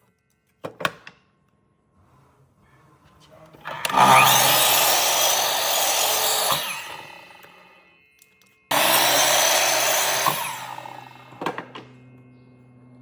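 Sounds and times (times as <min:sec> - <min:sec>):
power tool working wood: 0:03.6 - 0:07.7, 0:08.7 - 0:11.9.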